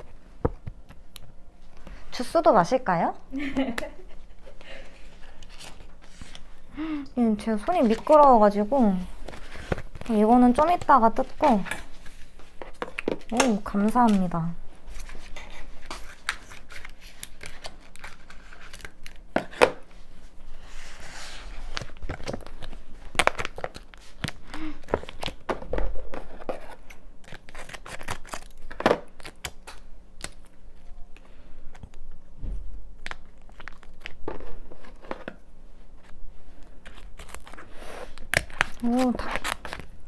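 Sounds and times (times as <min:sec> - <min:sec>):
food packaging crinkling and tearing: 0:05.0 - 0:06.9, 0:07.5 - 0:20.0, 0:21.5 - 0:30.9, 0:32.9 - 0:40.0.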